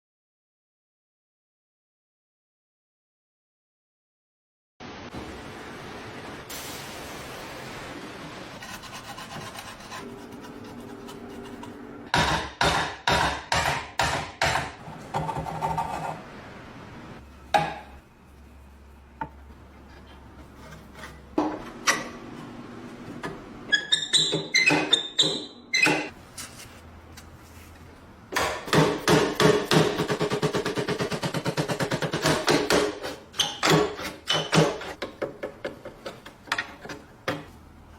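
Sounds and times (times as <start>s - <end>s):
rasping strokes: 8.6s - 11.9s
sharp knocks and scrapes on metal: 8.7s - 16.2s, 19.2s - 22.5s, 23.2s - 26.2s, 28.4s - 37.6s.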